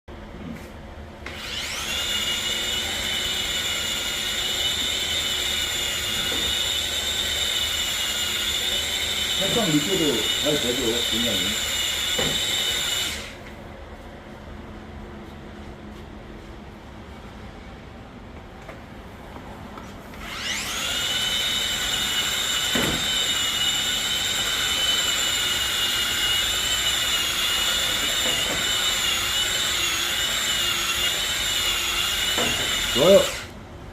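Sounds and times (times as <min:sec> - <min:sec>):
electric motor whine: 0:01.2 - 0:13.4, 0:20.2 - 0:33.6.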